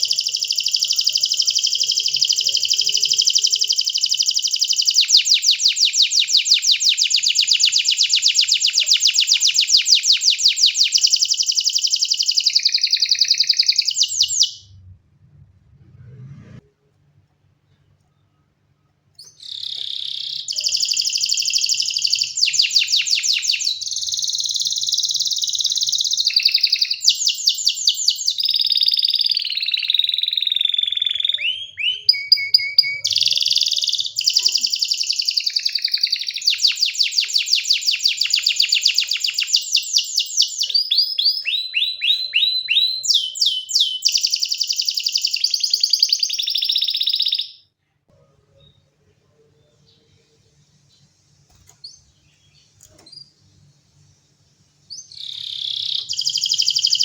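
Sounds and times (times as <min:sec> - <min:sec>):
canary singing trills: 0:00.0 - 0:14.8, 0:19.2 - 0:47.7, 0:54.9 - 0:57.0.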